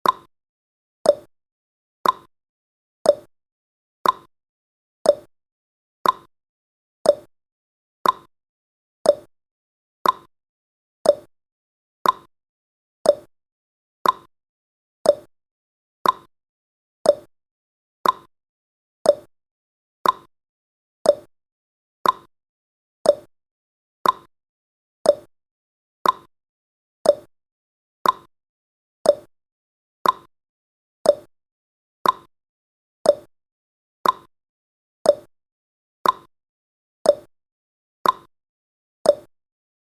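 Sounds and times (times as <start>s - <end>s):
clock ticking: 2.0s - 2.3s, 4.0s - 4.3s, 6.0s - 6.3s, 8.0s - 8.3s, 10.0s - 10.3s, 12.0s - 12.3s, 14.0s - 14.3s, 15.1s - 15.3s, 16.0s - 16.3s, 18.0s - 18.3s, 20.0s - 20.3s, 22.0s - 22.3s, 24.0s - 24.3s, 25.1s - 25.3s, 26.0s - 26.3s, 27.1s - 27.3s, 28.0s - 28.3s, 29.1s - 29.3s, 30.0s - 30.3s, 32.0s - 32.3s, 33.1s - 33.3s, 34.0s - 34.3s, 36.0s - 36.3s, 38.0s - 38.3s, 39.1s - 39.3s.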